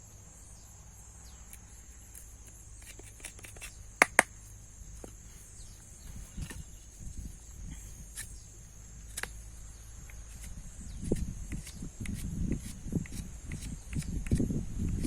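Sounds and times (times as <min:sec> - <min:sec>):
sharp clicks: 0:02.8 - 0:04.3.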